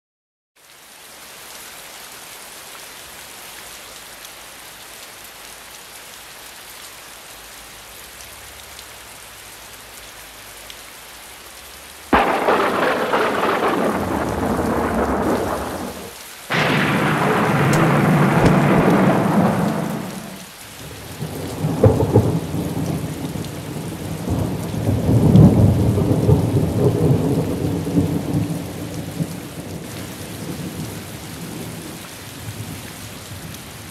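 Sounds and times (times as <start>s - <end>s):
rain hissing: 1.2s - 33.9s
thunder rumbling and cracking: 12.1s - 20.5s, 21.2s - 29.8s.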